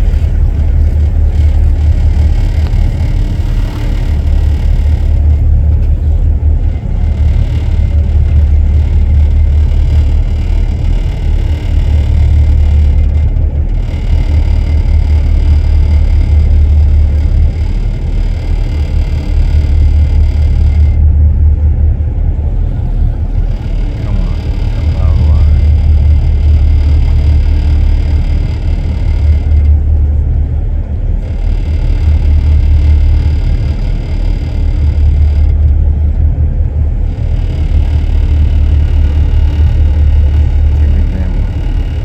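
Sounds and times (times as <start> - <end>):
wind buffeting microphone: 0.0 - 18.7.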